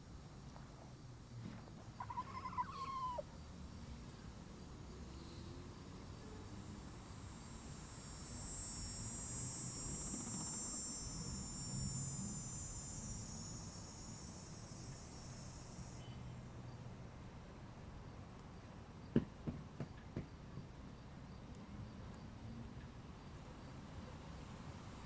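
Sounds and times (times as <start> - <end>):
high insect buzzing: 7.3 - 16.3.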